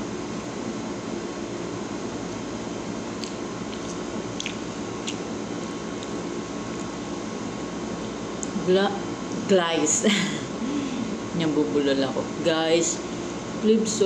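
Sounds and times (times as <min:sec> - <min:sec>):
faint chewing clicks: 0:03.2 - 0:07.0.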